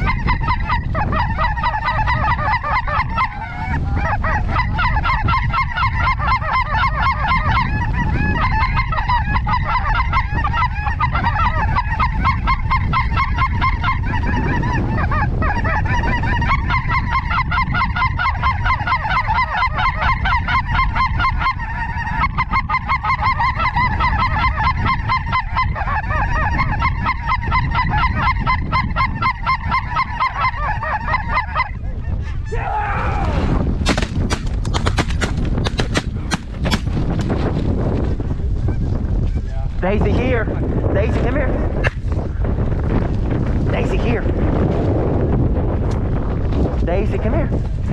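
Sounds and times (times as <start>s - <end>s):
geese honking: 0.0s - 32.3s, 43.7s - 44.2s
wind rumbling on microphone: 0.0s - 47.9s.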